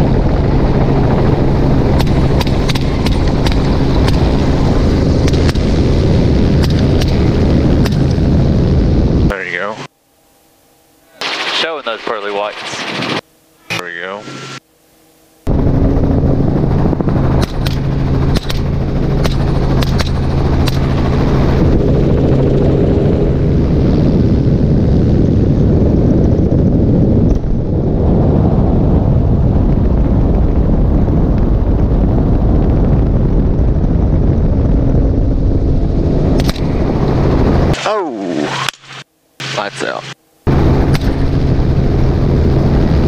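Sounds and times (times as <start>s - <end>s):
helicopter rotor and engine: 0.0s - 43.0s
rifle shots: 17.4s - 21.0s.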